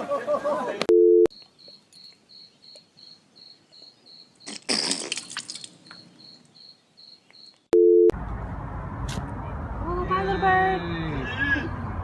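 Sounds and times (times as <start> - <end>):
cricket chirping: 1.3 - 7.7.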